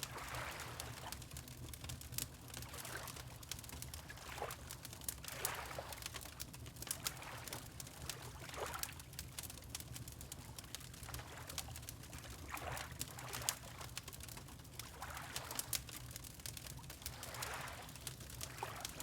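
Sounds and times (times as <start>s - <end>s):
wood fire crackling: 0.0s - 12.5s, 13.3s - 14.9s, 15.5s - 19.0s
water lapping: 0.1s - 1.2s, 5.3s - 6.0s, 17.1s - 17.9s.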